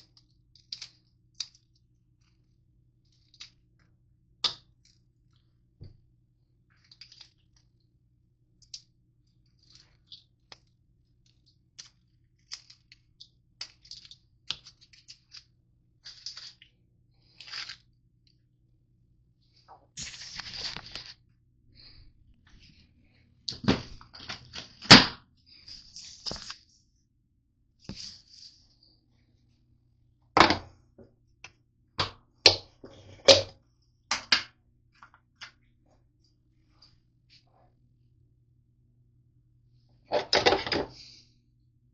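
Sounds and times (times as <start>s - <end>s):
granola bars crunching in a bowl: 11.3s - 18.0s.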